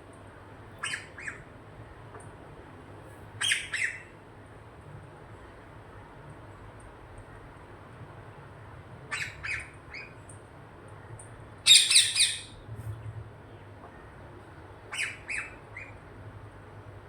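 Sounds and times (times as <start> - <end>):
parrots squawking: 11.7 - 12.6.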